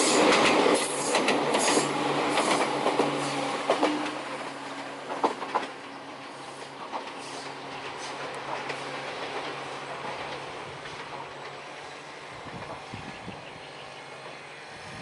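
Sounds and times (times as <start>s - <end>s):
electric train running: 0.0s - 15.0s.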